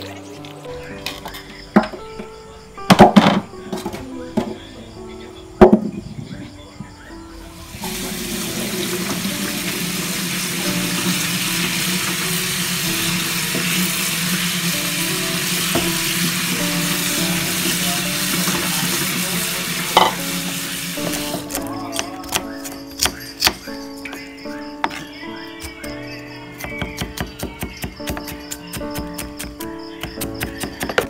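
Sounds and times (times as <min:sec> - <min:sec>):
tap water splashing: 0:07.8 - 0:12.3, 0:13.4 - 0:14.7, 0:15.5 - 0:21.6.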